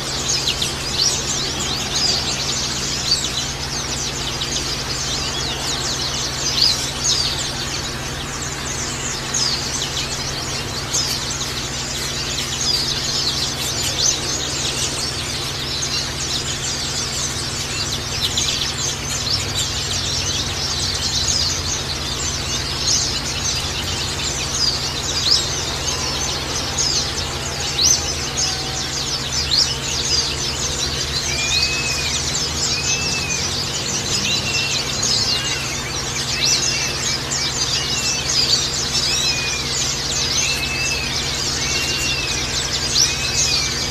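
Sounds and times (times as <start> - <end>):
birds chirping and twittering: 0.0 - 43.9
low background hum: 0.0 - 43.9
whistled bird calls: 0.0 - 43.9.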